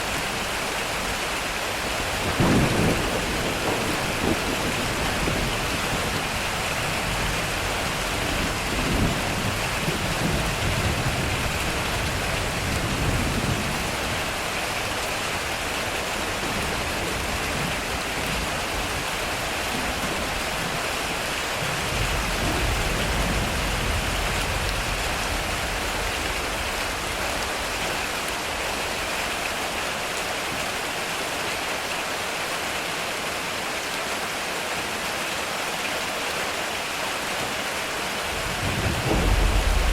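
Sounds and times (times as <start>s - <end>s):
heavy rain on a metal roof: 0.0s - 39.9s
thunder rumbling: 2.0s - 14.8s, 21.6s - 29.0s, 38.3s - 39.9s.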